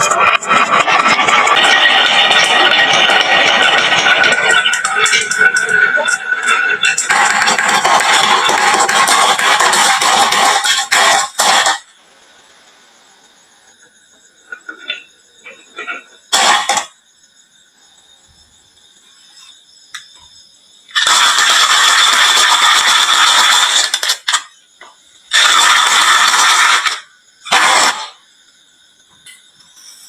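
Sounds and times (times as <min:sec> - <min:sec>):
marbles rolling down wooden run: 0:00.0 - 0:11.9, 0:21.0 - 0:24.5.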